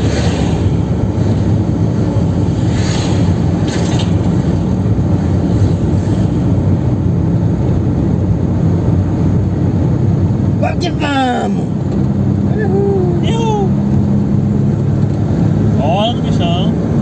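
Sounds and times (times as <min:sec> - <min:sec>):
car engine drone: 0:00.0 - 0:17.0
brief whooshes: 0:02.5 - 0:04.6.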